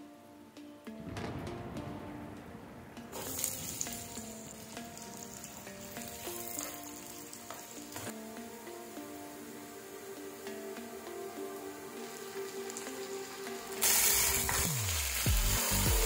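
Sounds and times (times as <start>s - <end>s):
onions sizzling in hot oil: 3.2s - 8.2s, 8.8s - 16.0s.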